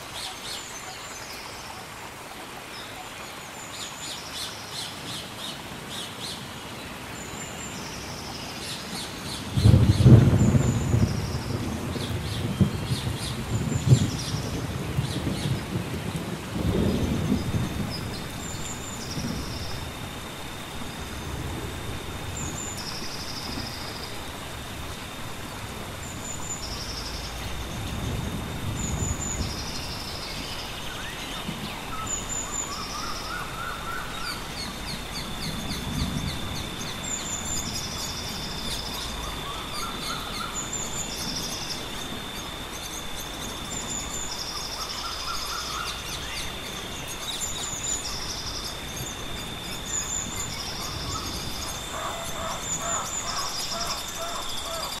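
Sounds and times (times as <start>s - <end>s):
insect whine: 0.0s - 55.0s
water noise: 0.0s - 55.0s
lower rising bird calls: 16.8s - 55.0s.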